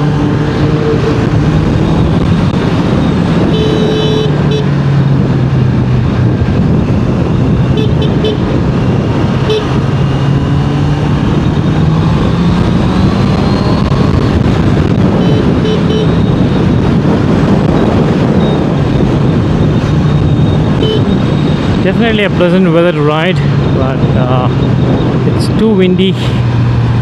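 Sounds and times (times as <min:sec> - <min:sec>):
wind rush on microphone: 0:00.0 - 0:27.0.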